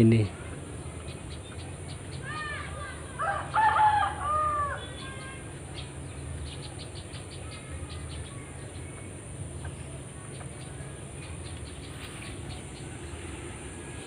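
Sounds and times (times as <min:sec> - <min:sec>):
faint bird chirps: 0:00.0 - 0:14.0
steady high whine: 0:00.0 - 0:14.0
steady low hum: 0:00.0 - 0:14.0
rooster crowing: 0:03.2 - 0:05.0.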